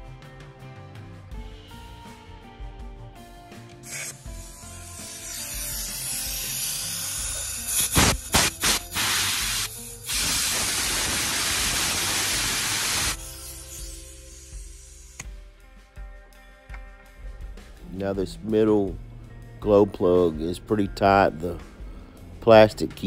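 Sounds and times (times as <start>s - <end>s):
pressurised spray hissing: 3.8s - 15.2s.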